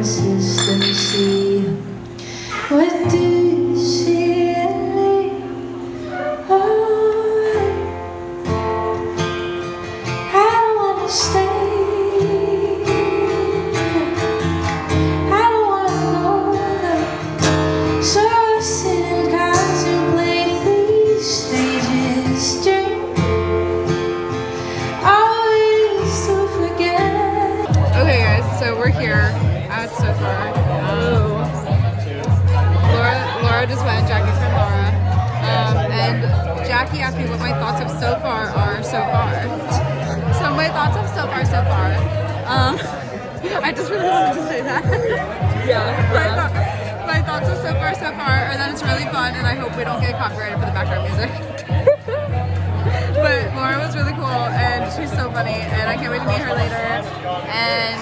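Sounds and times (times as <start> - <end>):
woman singing: 0.0 - 9.4, 10.0 - 31.9, 32.8 - 52.0, 52.8 - 58.0.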